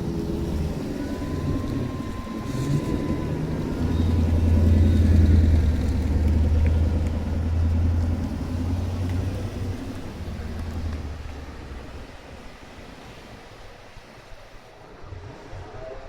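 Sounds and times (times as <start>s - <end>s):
car driving by: 0.0s - 11.6s.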